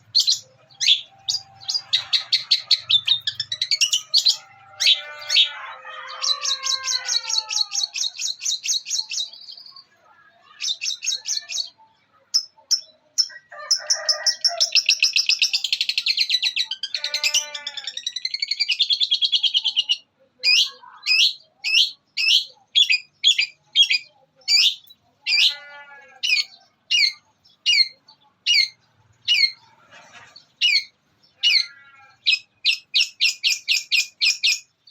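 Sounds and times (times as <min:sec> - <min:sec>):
sharp down-slurred bird chirps: 0:00.0 - 0:05.5, 0:14.8 - 0:29.8, 0:30.4 - 0:34.9
bird singing chattering trills: 0:00.0 - 0:13.4, 0:14.6 - 0:34.9.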